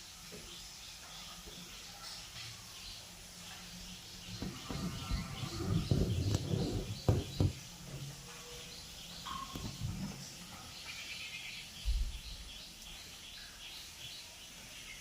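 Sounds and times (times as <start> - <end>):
small birds chirping: 0.0 - 15.0
sharp knocks: 4.4 - 7.6.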